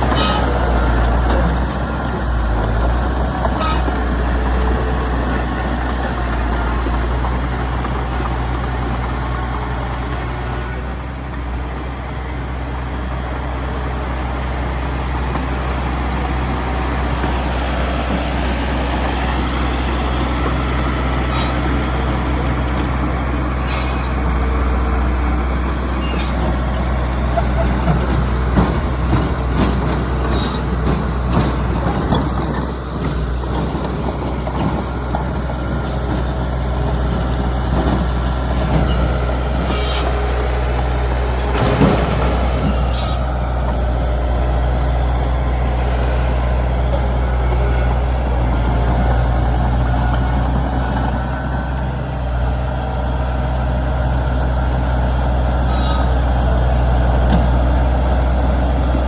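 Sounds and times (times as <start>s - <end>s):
heavy diesel engines droning: 0.0s - 59.0s
knocks and clanks: 26.0s - 44.0s.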